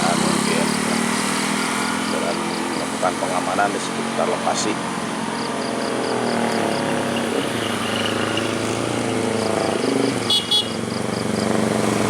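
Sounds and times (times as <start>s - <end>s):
road traffic engines: 0.0s - 12.0s
car horn toots: 10.2s - 10.8s.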